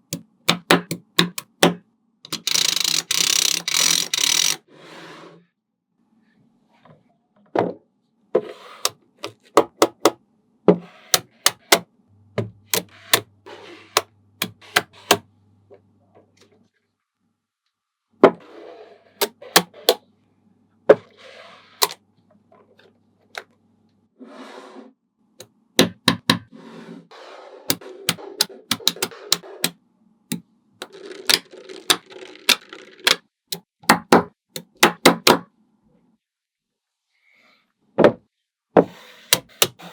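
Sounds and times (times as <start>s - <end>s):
magnetic balls clicking together: 0.0s - 1.7s, 2.3s - 4.6s, 27.7s - 33.7s
magnetic balls rattling and scraping: 2.3s - 4.7s, 30.3s - 33.2s.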